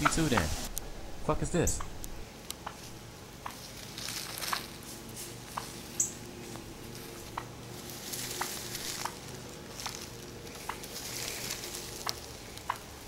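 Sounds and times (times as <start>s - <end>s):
faint rustling: 6.4s - 12.6s
turkey hen clucking: 7.1s - 13.0s.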